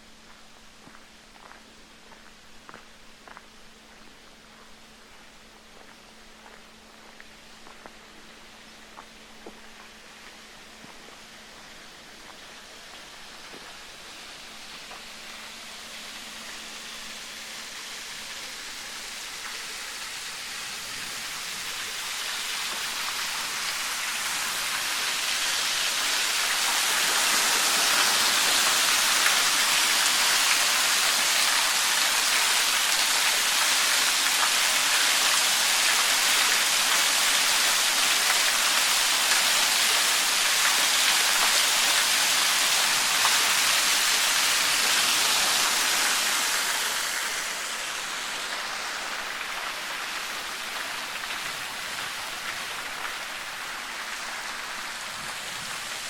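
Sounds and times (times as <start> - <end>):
rushing water: 11.6 - 56.0.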